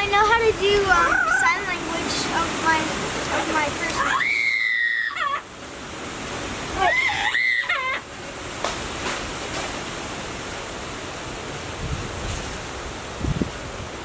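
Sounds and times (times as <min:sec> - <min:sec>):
steady rushing hiss: 0:00.0 - 0:14.0.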